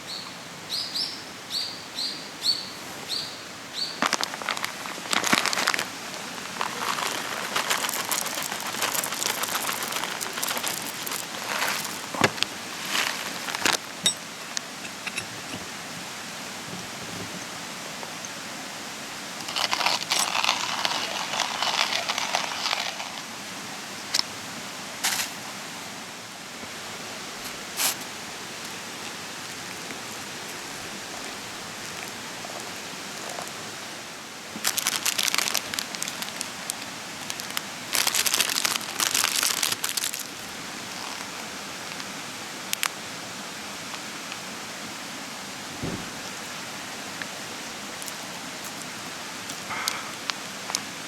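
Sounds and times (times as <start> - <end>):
campfire hissing and crackling: 3.5 - 51.0
sharp fire pops: 45.8 - 46.4.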